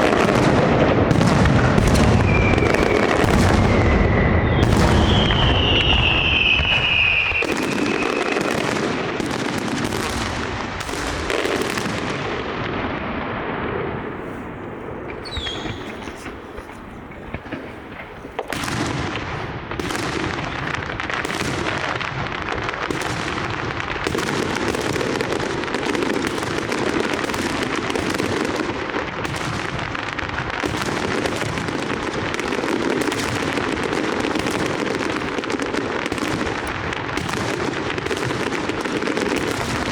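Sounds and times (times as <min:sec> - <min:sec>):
fireworks crackle: 0:00.0 - 0:39.9
falling whistle: 0:02.2 - 0:08.5, 0:15.2 - 0:16.1
fireworks shell bursts: 0:15.1 - 0:18.2.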